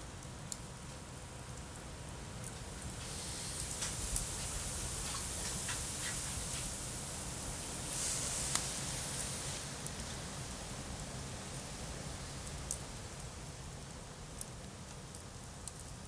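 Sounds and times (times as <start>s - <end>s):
wood fire crackling: 2.0s - 13.7s.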